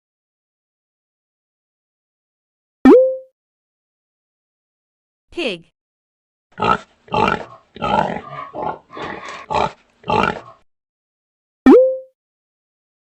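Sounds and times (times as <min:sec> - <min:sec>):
rising click-and-tone sound effect: 0:02.9 - 0:03.3, 0:11.7 - 0:12.1
pig grunting and oinking: 0:06.6 - 0:10.7.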